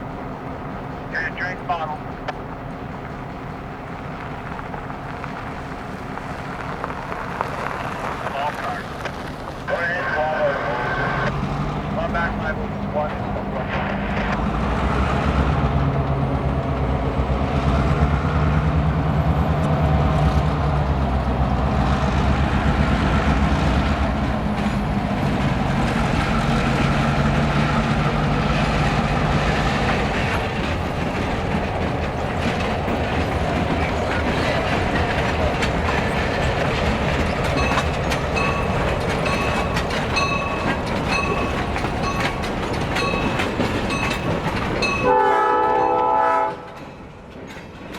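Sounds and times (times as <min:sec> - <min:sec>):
diesel locomotive engine drone: 0:00.0 - 0:47.9
wheels clicking over rail joints: 0:11.3 - 0:45.2, 0:46.6 - 0:47.9.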